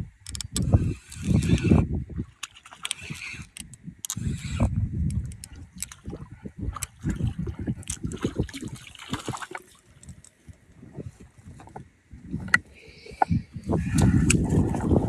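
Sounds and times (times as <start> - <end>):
wind buffeting microphone: 0.0 - 15.0
sharp clicks and knocks: 0.2 - 1.7.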